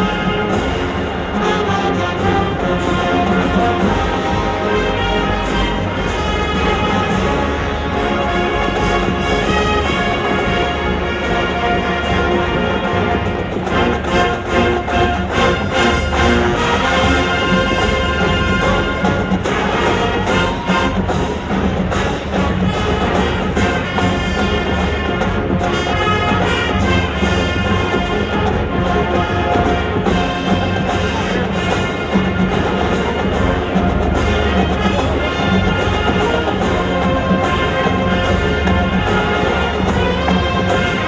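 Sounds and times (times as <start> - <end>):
drums steady beat: 0.0 - 41.0
marching band brass: 0.0 - 41.0.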